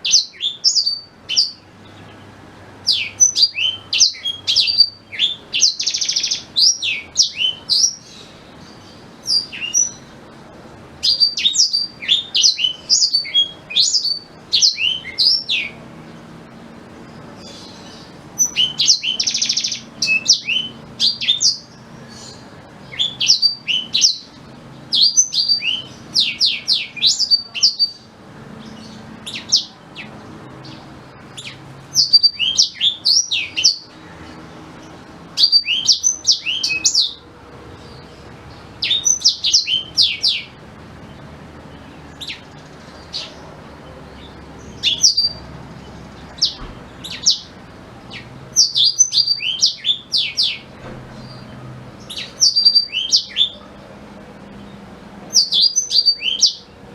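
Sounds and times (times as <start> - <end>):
canary singing rapid chirps: 0.0 - 56.9.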